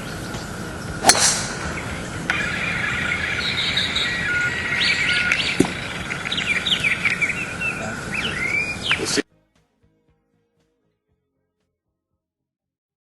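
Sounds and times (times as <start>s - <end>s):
birds chirping and calling: 0.0s - 9.2s
outdoor background hiss: 0.0s - 9.2s.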